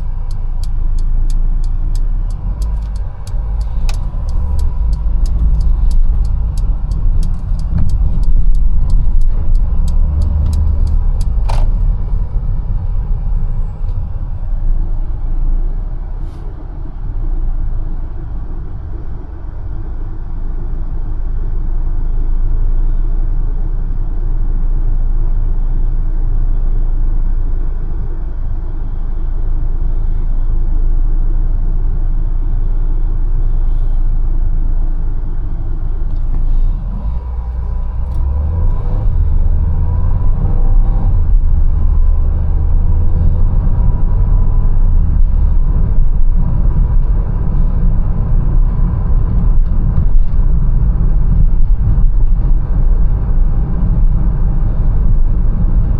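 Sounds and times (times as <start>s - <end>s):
regular ticking: 0.0s - 13.0s
car engine and road rumble: 0.0s - 55.9s
sharp click: 0.2s - 12.2s.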